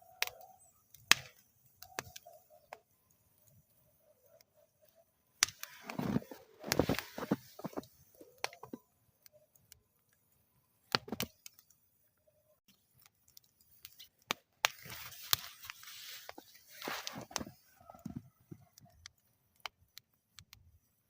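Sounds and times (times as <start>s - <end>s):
wood fire crackling: 0.0s - 21.0s
fire hissing: 5.4s - 8.8s, 14.7s - 18.9s.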